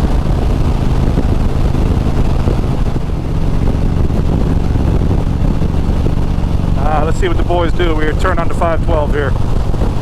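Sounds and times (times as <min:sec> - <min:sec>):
motorcycle engine cruising: 0:00.0 - 0:10.0
wind and road noise: 0:00.0 - 0:10.0.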